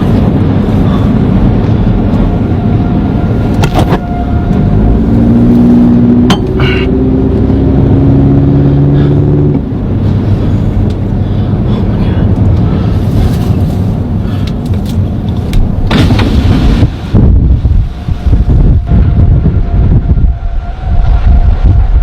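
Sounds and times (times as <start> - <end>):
wind buffeting microphone: 0.0 - 22.0
droning multi-pitch tone: 2.2 - 8.6, 17.8 - 22.0.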